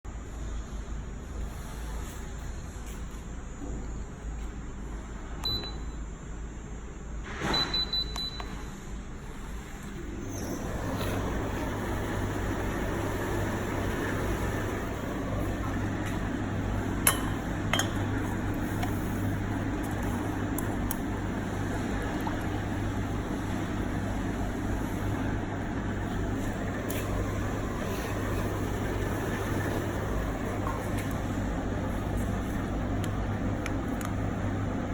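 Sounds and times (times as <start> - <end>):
short electronic beeps: 7.5 - 8.6
tumble dryer running: 10.6 - 34.9.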